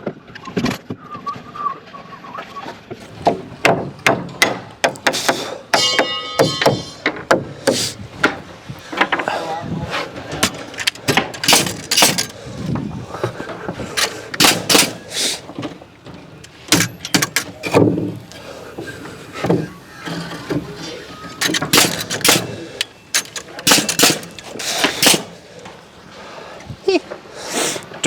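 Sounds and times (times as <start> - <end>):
wood knocking and clattering: 3.0 - 9.4, 10.2 - 18.3.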